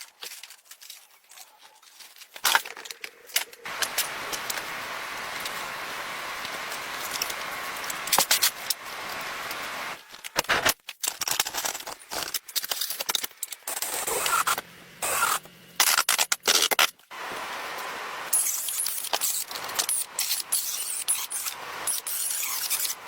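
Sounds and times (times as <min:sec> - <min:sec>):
steady hiss: 0:03.6 - 0:10.0, 0:17.1 - 0:23.0.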